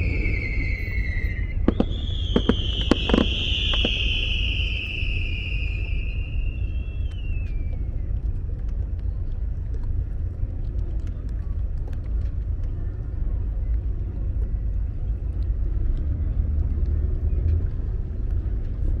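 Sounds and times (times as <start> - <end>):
firework cracks: 0.0 - 7.6
firework whistle sliding down: 0.0 - 8.0
low rumble: 0.0 - 19.0.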